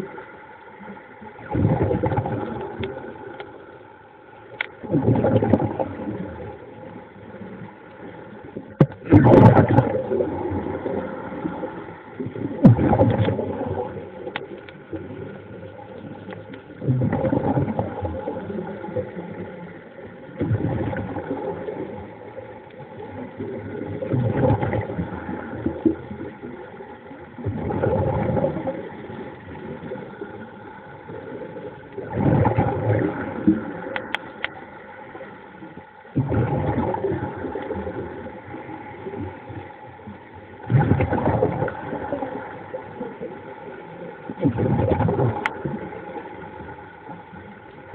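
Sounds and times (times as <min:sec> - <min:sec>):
faint underwater hum: 0:00.0 - 0:47.9
noisy underwater surge: 0:00.0 - 0:47.9.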